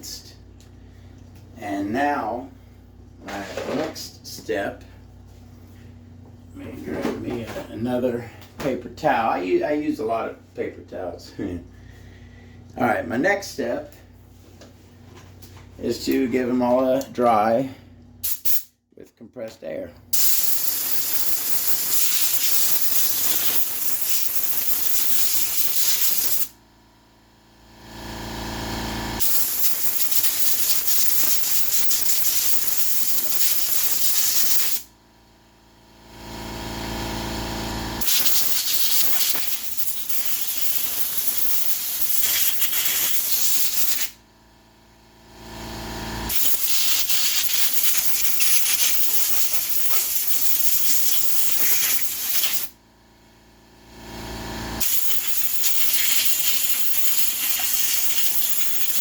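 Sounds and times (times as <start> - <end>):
compressed air blow gun hissing: 20.2 - 26.5, 29.2 - 34.8, 38.0 - 44.1, 46.3 - 52.7, 54.8 - 59.0.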